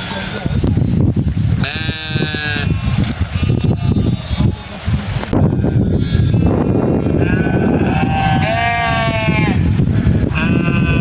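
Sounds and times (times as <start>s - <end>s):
steady low rumbling: 0.0s - 11.0s
sheep bleating: 1.6s - 4.3s, 6.0s - 9.6s, 10.2s - 11.0s.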